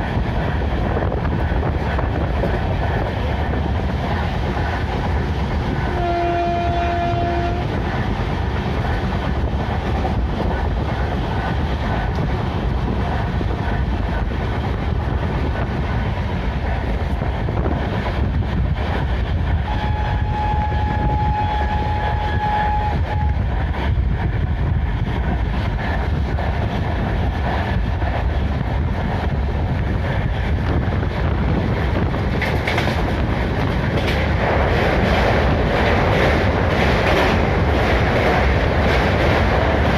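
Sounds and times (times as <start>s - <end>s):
train track noise: 0.0s - 39.9s
train horn: 5.9s - 7.7s, 19.6s - 23.4s.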